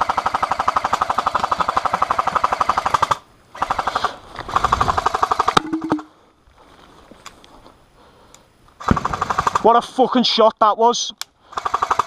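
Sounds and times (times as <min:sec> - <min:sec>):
airsoft guns firing bursts: 0:00.0 - 0:06.0, 0:08.8 - 0:09.9, 0:11.5 - 0:12.0.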